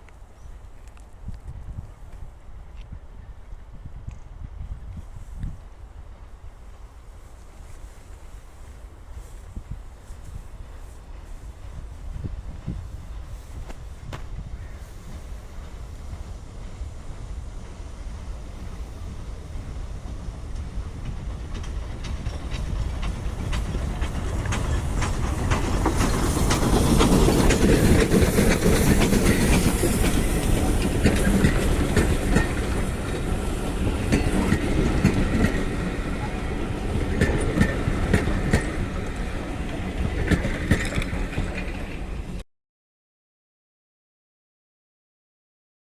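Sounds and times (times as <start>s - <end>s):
train wheels clicking over rail joints: 15.0s - 42.4s.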